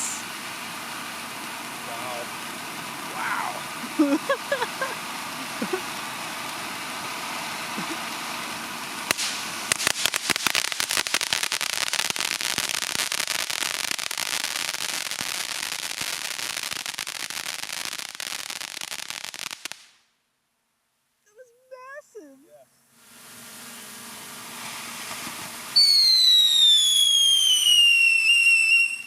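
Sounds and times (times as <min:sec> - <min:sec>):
firework hissing: 0:00.0 - 0:20.1, 0:21.9 - 0:29.0
firework bang: 0:04.6 - 0:20.0, 0:24.3 - 0:29.0
crackling firework pops: 0:05.0 - 0:20.1, 0:24.5 - 0:29.0.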